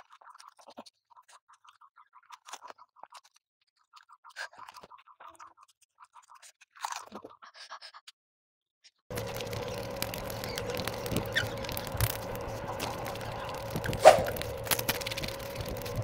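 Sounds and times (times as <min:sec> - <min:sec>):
crunching crisp shells: 0:09.1 - 0:16.0.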